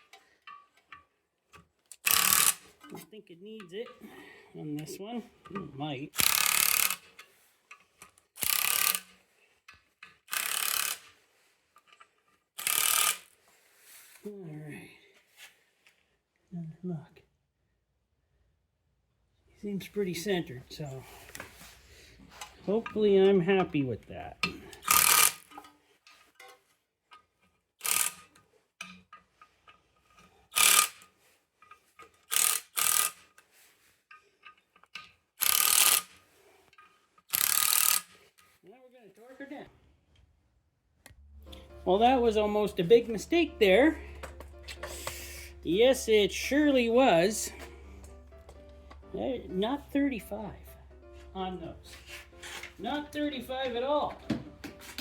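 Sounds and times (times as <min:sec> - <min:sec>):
ratchet wrench clicking: 0:01.9 - 0:02.9, 0:06.2 - 0:07.8, 0:08.4 - 0:09.2, 0:10.0 - 0:11.2, 0:12.6 - 0:13.4, 0:24.4 - 0:25.7, 0:27.8 - 0:33.4, 0:34.4 - 0:36.2, 0:37.3 - 0:38.2.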